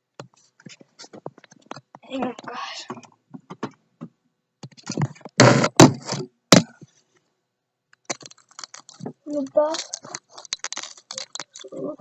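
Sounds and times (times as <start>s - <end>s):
sharp knocks: 5.0s - 6.8s
hard objects clattering: 8.1s - 12.0s.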